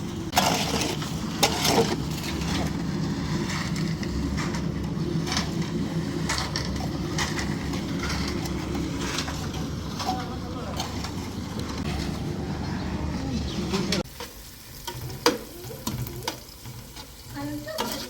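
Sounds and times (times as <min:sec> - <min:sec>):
engine running: 0:00.0 - 0:14.1
knocks and scraping clatter: 0:00.0 - 0:18.0.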